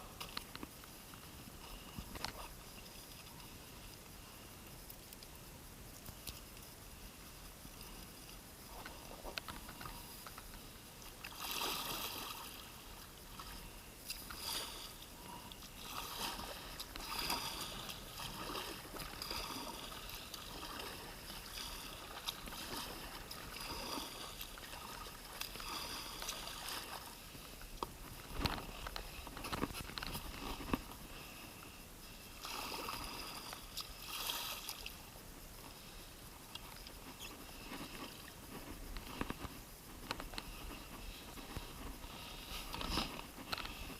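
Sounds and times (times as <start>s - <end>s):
kayak paddle splashing: 8.7s - 31.5s, 32.2s - 35.0s.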